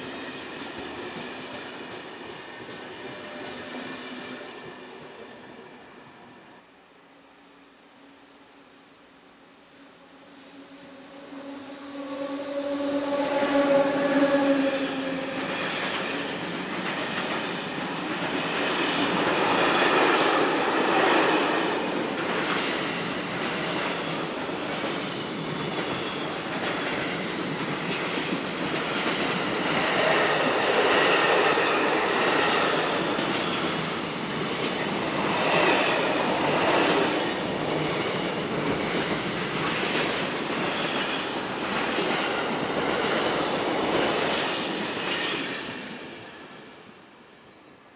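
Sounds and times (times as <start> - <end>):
train wagons rumbling past: 10.0 - 46.8.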